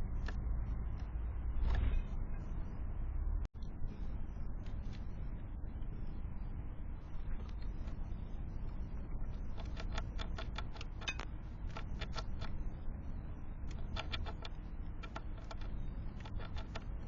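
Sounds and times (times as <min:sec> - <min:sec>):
low rumble: 0:00.0 - 0:17.0
birds pecking on feeder: 0:07.1 - 0:12.8, 0:13.6 - 0:17.0.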